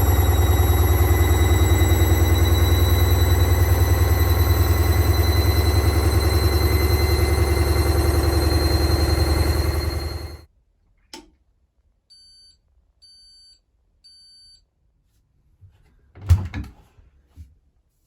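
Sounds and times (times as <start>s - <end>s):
high beeps: 0.0s - 10.4s
washing machine spin running down: 0.0s - 10.5s.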